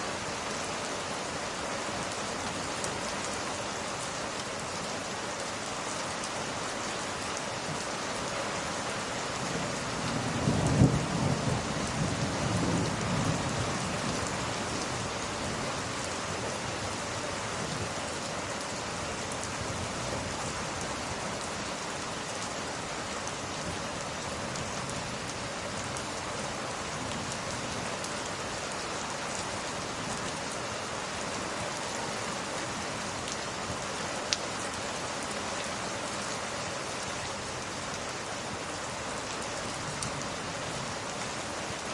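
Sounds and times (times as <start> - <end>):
steady rain falling: 0.0 - 41.9
thunder rumbling: 10.1 - 14.2.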